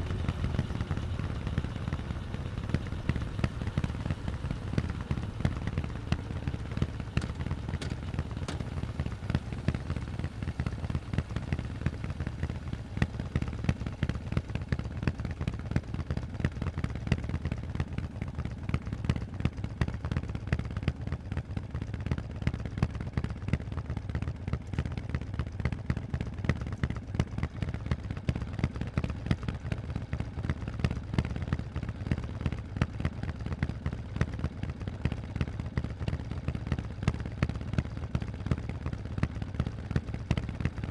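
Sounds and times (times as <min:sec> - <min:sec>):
motorcycle exhaust rumbling: 0:00.0 - 0:18.3, 0:34.0 - 0:40.9.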